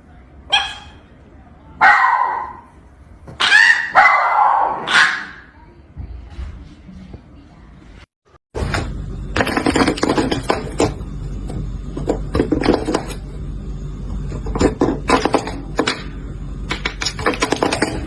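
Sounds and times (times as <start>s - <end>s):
steady low hum: 5.4s - 18.0s
clattering and knocking: 8.6s - 13.2s, 14.2s - 16.1s, 16.7s - 18.0s.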